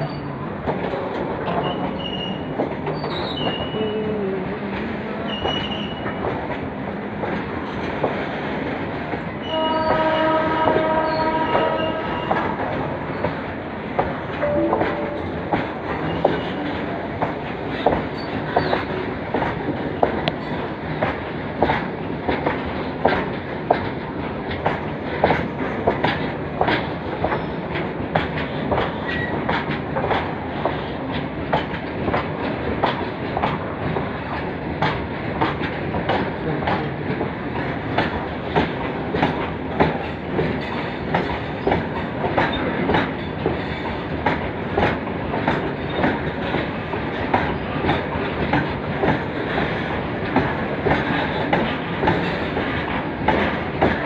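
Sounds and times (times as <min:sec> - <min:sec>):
train rumble: 0:00.0 - 0:54.0
train wheels clattering over rail joints: 0:00.6 - 0:03.8, 0:04.7 - 0:14.4, 0:15.5 - 0:54.0.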